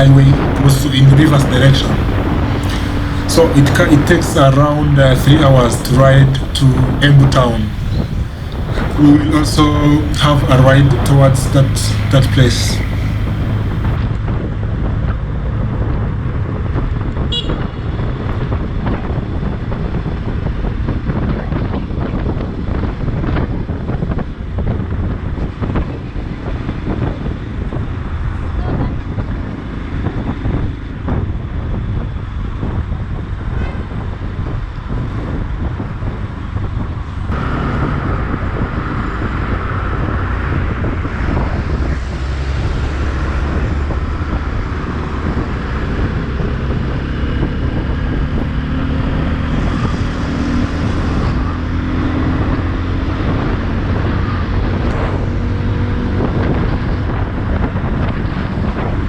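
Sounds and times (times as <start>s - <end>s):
passing road traffic: 0.0s - 14.1s, 36.1s - 59.0s
wind buffeting microphone: 0.0s - 59.0s
motorcycle engine running: 1.8s - 14.0s.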